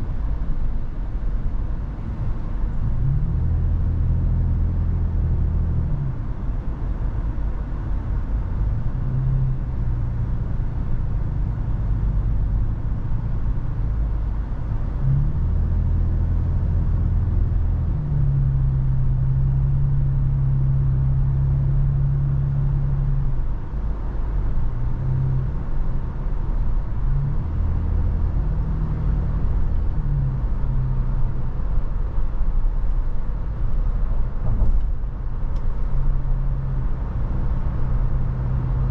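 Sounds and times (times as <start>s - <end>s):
engine and road rumble: 0.0s - 38.9s
engine drone: 21.5s - 38.9s.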